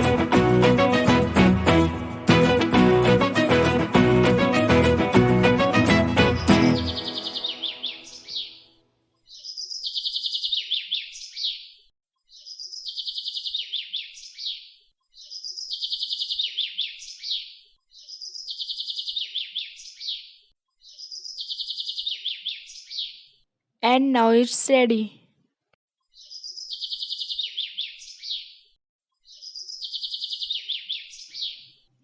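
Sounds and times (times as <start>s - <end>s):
bird chirping trill: 6.2s - 24.9s, 26.1s - 28.6s, 29.2s - 31.8s.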